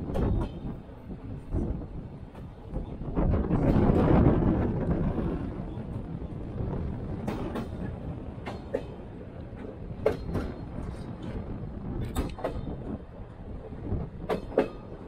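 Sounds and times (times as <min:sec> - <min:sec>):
train carriage rumbling: 0:00.0 - 0:15.0
wheels clicking over rail joints: 0:07.0 - 0:15.0.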